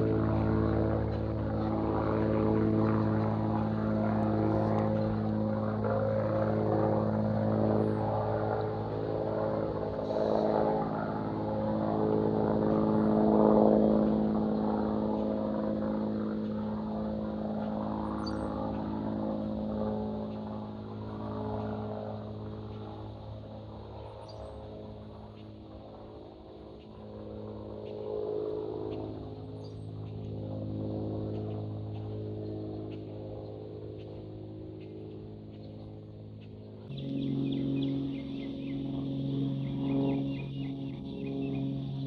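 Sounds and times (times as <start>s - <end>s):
aircraft engine droning: 0.0s - 42.0s
faint bird chirps: 18.2s - 18.5s.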